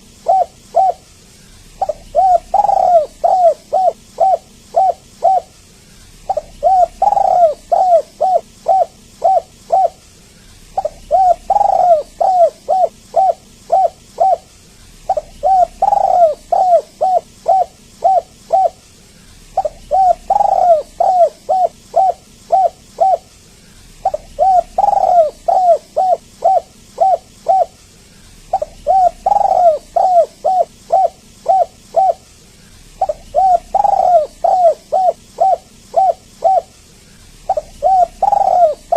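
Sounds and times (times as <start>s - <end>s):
dove cooing: 0.0s - 27.8s, 28.4s - 38.9s.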